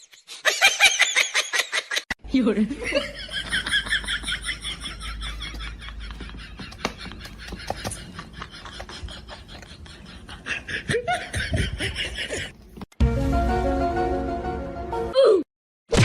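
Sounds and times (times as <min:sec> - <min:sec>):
people laughing and snickering: 0:00.0 - 0:02.1, 0:02.7 - 0:12.8
music: 0:13.0 - 0:15.2.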